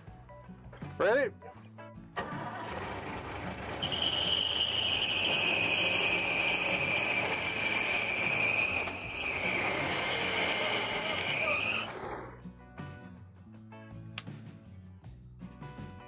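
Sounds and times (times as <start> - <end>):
car engine running: 2.2 - 3.8
high-pitched whistle: 3.8 - 9.8.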